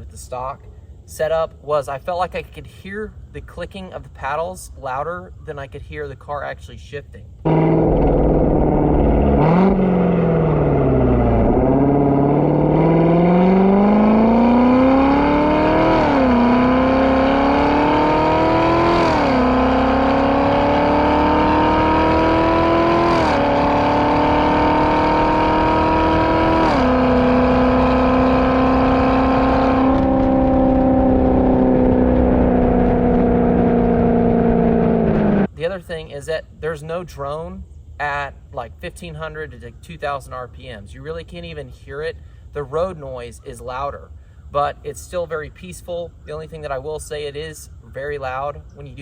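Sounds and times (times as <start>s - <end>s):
car engine accelerating through gears: 7.5s - 35.5s.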